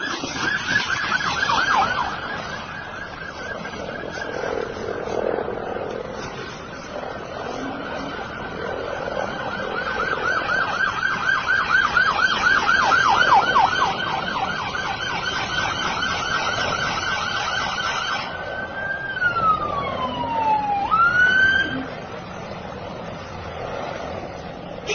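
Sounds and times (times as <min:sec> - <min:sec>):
police siren: 0:00.0 - 0:24.9.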